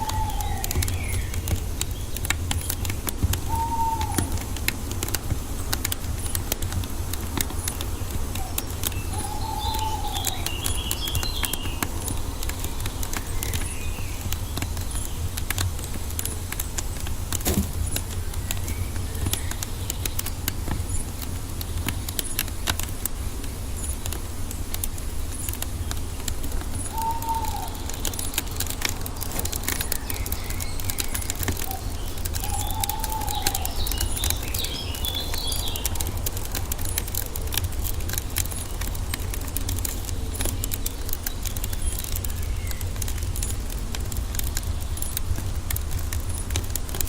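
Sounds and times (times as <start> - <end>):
bird calling: 0.0 - 5.2, 6.0 - 15.3, 26.2 - 39.4
wood fire crackling and popping: 0.0 - 47.0
small bird twittering: 6.0 - 15.3, 25.3 - 37.2.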